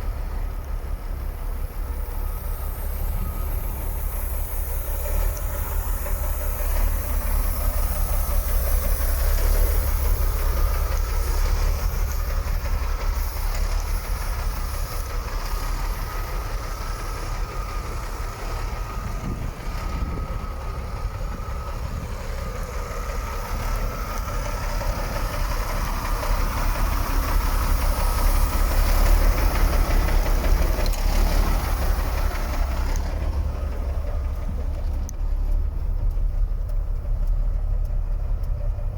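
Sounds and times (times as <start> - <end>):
diesel truck engine idling: 0.0 - 38.9.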